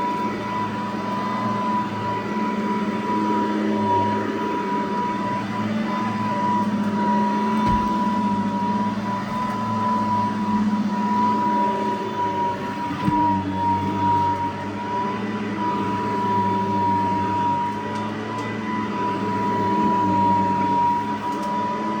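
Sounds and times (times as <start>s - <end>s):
vacuum cleaner motor whine: 0.0s - 22.0s
low bump: 7.6s - 8.4s.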